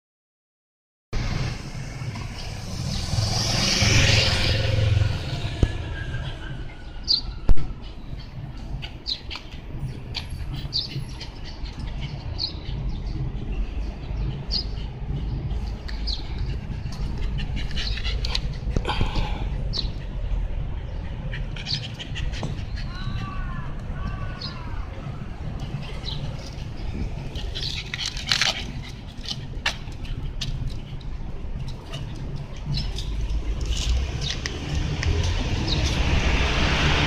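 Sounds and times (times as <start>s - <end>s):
car passing: 1.2s - 37.0s
traffic rumble: 1.2s - 37.0s.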